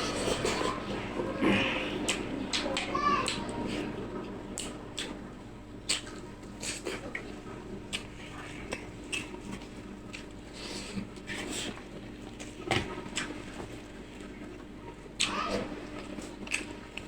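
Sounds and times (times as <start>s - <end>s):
wet chewing: 4.6s - 5.2s, 5.8s - 13.6s, 16.0s - 17.0s.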